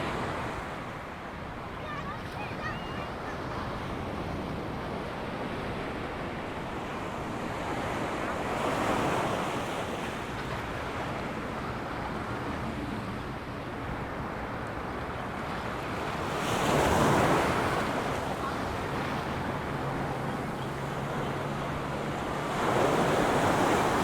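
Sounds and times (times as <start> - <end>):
ocean surf on a sandy beach: 0.0 - 24.0.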